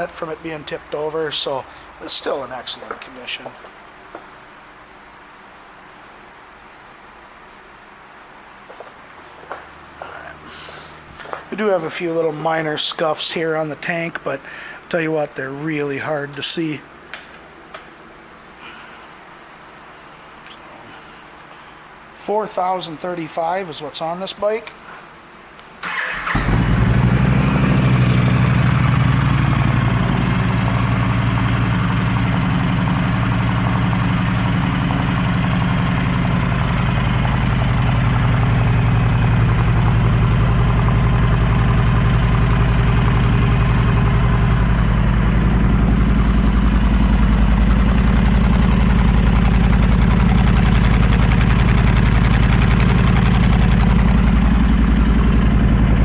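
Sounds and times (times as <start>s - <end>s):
motorcycle engine starting and idling: 25.8s - 56.0s.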